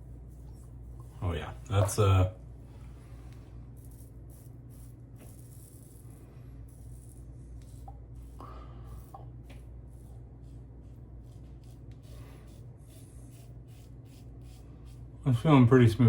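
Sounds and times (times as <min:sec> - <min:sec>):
steady low hum: 0:00.0 - 0:16.0
razor scraping stubble: 0:03.3 - 0:15.3.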